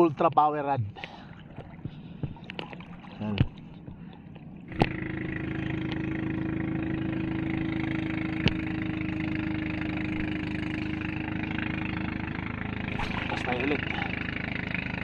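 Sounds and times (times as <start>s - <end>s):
boat engine idling: 0.0s - 15.0s
boat engine starting click: 2.4s - 5.1s.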